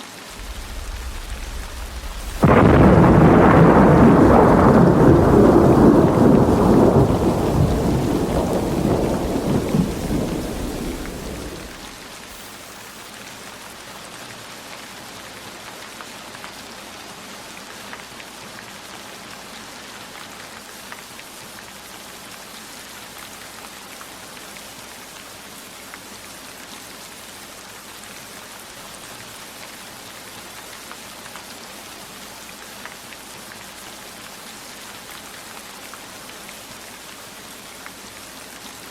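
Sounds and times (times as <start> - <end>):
heavy rain: 0.0 - 38.9
raindrop ticks: 0.4 - 12.0
thunder rolling: 0.4 - 12.0.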